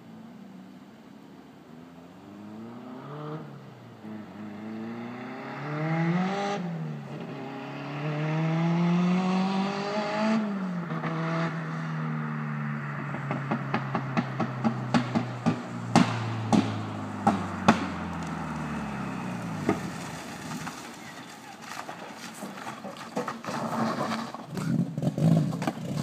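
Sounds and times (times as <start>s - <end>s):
turbocharged car engine revving: 4.1s - 21.0s.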